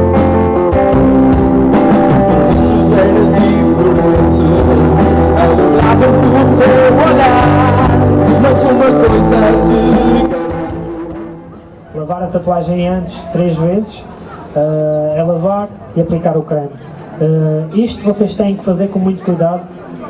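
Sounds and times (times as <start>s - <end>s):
electric guitar: 0.0s - 11.9s
bass guitar: 0.0s - 12.0s
drums: 0.0s - 12.0s
person singing: 1.8s - 11.6s.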